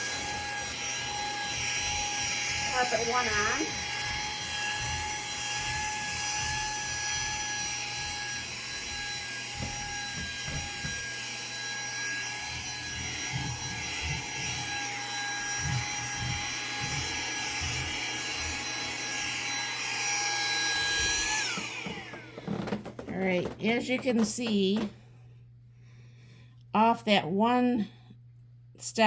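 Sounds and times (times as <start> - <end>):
nozzle scrubbing carpet: 0.0 - 22.8
vacuum cleaner whining: 0.0 - 25.1.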